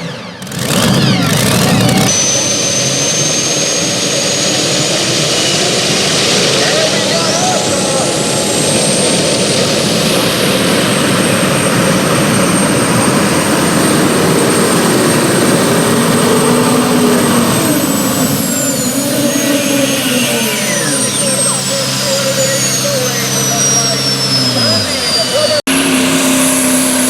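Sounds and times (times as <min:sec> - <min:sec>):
tractor engine running flat out: 0:00.0 - 0:27.0
high turbo whistle: 0:13.0 - 0:27.0.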